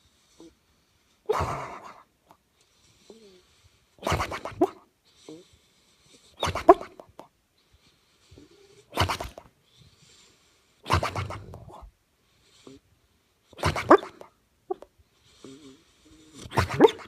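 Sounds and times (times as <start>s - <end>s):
soft dog breaths: 0.0s - 17.0s
dog snoring: 3.0s - 5.5s, 14.7s - 17.0s.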